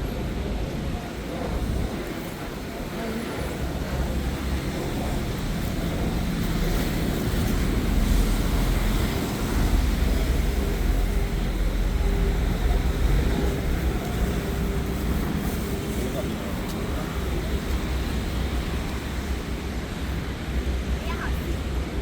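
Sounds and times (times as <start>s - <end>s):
city street traffic noise: 0.0s - 22.0s.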